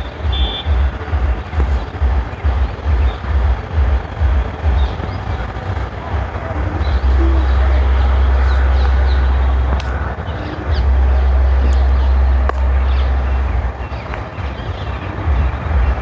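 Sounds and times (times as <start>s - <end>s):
small birds chirping: 0.0s - 16.0s
wind buffeting microphone: 0.0s - 16.0s.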